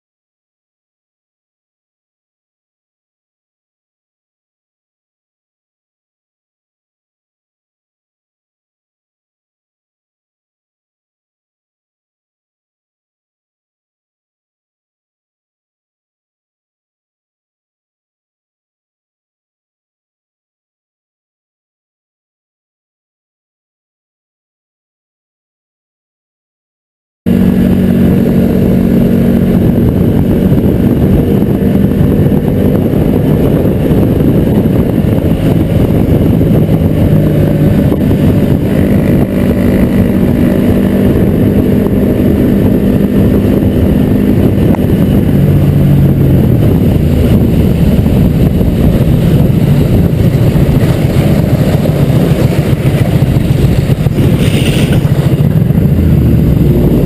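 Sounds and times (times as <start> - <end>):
vehicle engine and road rumble: 27.3 - 57.0.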